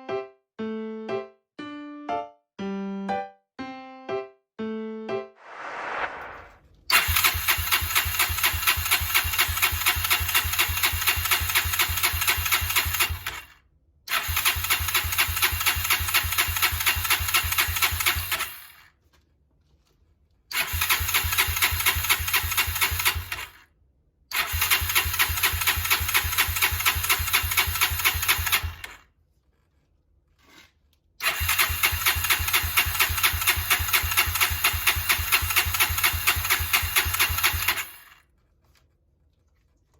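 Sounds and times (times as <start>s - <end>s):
electric starter cranking engine: 6.9s - 18.9s, 20.5s - 23.6s, 24.3s - 29.0s, 31.2s - 38.2s.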